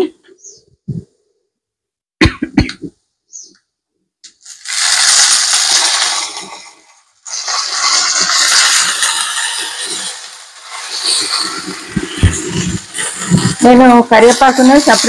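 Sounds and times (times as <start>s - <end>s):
leaves crackling in hot oil: 4.3s - 15.0s.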